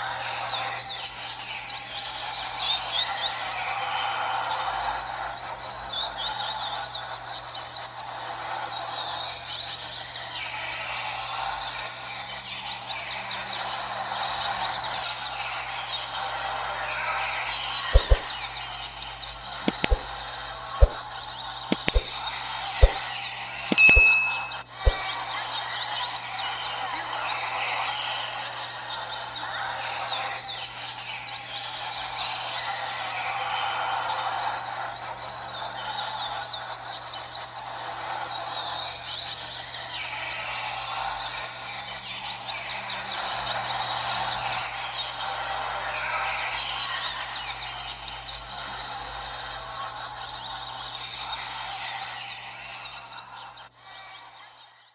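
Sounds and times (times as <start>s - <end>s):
chorus of birds chirping and trilling: 0.0s - 54.9s
steady background noise: 9.2s - 25.6s.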